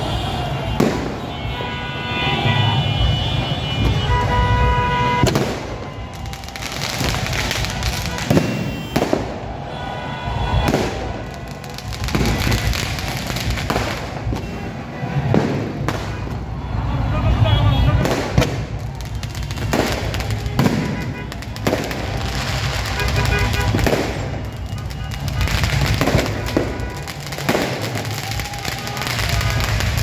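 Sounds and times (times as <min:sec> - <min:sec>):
fireworks bangs: 0:00.1 - 0:02.0, 0:03.0 - 0:16.6, 0:17.5 - 0:30.0.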